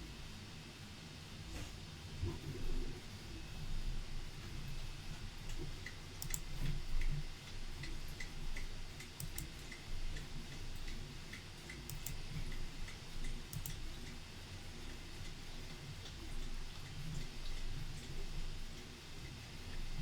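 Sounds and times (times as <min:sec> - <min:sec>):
small irregular ticks and clicks: 0:02.2 - 0:20.0.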